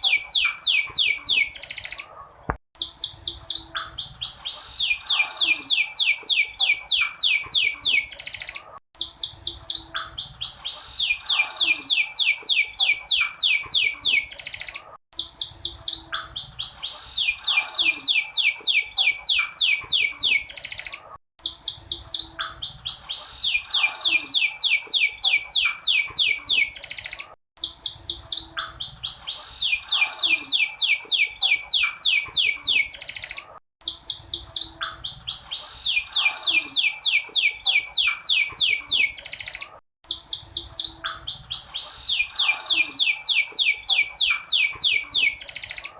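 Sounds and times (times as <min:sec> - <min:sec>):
canary trilling: 0:02.8 - 0:45.9.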